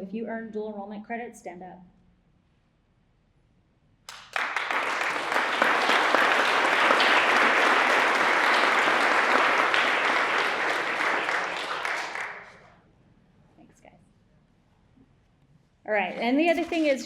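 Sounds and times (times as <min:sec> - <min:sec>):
audience applauding: 0:04.1 - 0:12.7.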